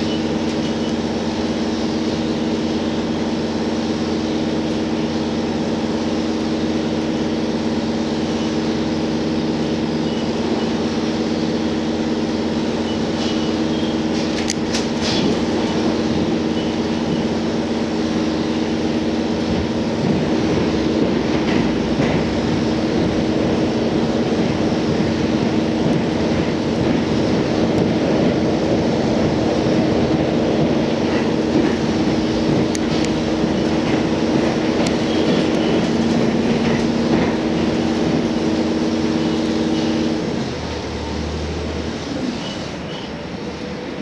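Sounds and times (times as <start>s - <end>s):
railcar running rumble: 0.0s - 44.0s
wheels clicking over rail joints: 12.5s - 17.5s, 19.3s - 38.6s.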